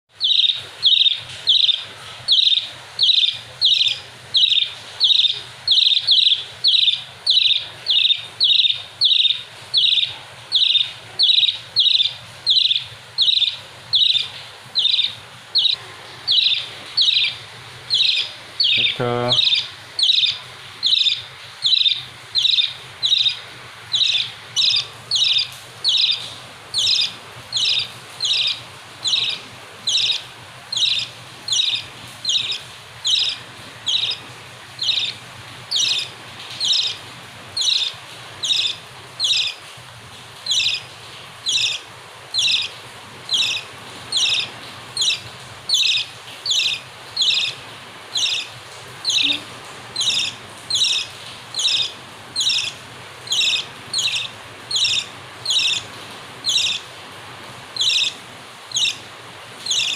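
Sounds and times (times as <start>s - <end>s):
bird chirping: 0.1s - 56.9s, 57.8s - 59.9s.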